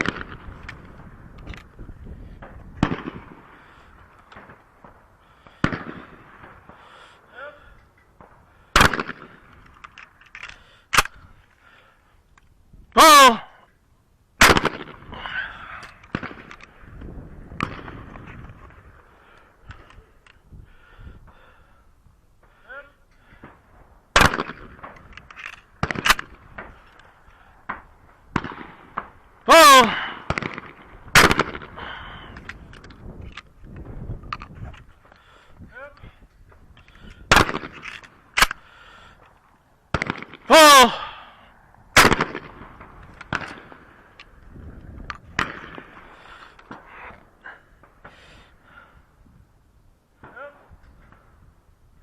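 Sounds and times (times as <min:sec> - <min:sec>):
shotgun shots with echo: 0:08.8 - 0:09.3, 0:14.4 - 0:15.1, 0:24.2 - 0:25.0, 0:28.3 - 0:31.8, 0:37.3 - 0:37.8, 0:42.0 - 0:43.9
faint sharp cracks: 0:15.7 - 0:20.4.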